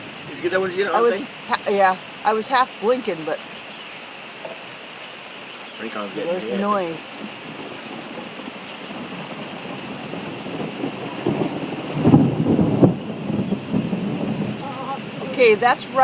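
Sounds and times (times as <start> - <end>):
steady rain falling: 0.0 - 16.0
thunder rumbling: 6.1 - 16.0.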